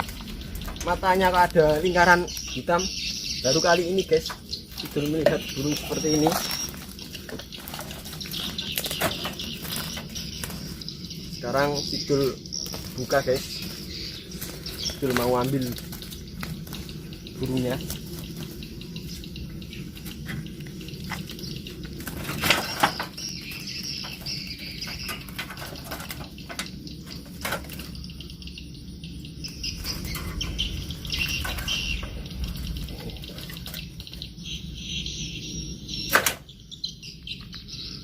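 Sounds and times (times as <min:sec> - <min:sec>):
high bird chirping: 0:00.0 - 0:38.0
wings flapping: 0:04.2 - 0:11.0, 0:11.7 - 0:24.4.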